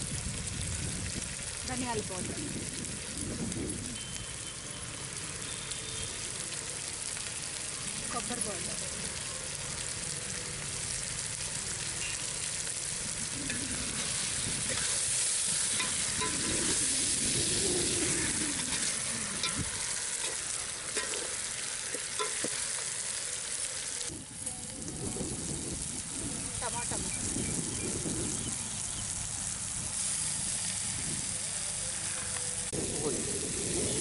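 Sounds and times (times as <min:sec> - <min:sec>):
chicken sizzling in a metal pot: 0:00.0 - 0:34.0
metal spoon scraping a pot: 0:13.5 - 0:16.9, 0:18.6 - 0:22.5.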